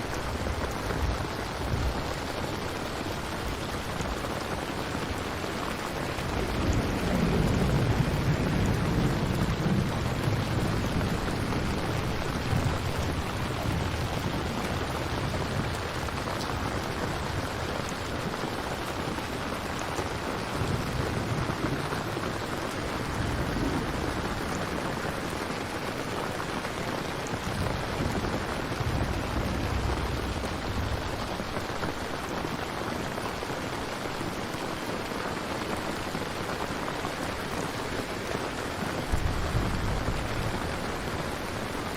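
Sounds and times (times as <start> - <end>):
steady rain: 0.0 - 41.9
distant thunder rolling: 6.0 - 18.1, 20.3 - 25.6, 26.5 - 32.3, 39.0 - 41.9.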